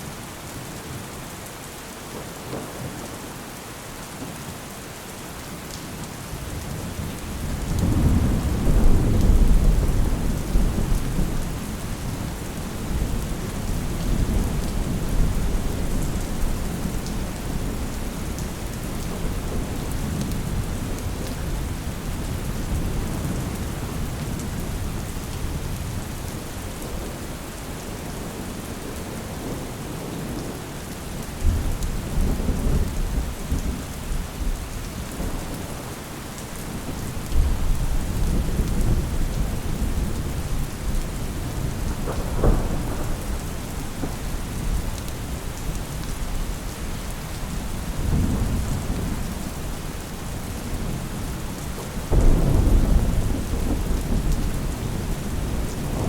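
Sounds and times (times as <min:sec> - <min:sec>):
steady rain: 0:00.0 - 0:56.0
thunder rumbling: 0:36.7 - 0:51.2, 0:51.8 - 0:56.0.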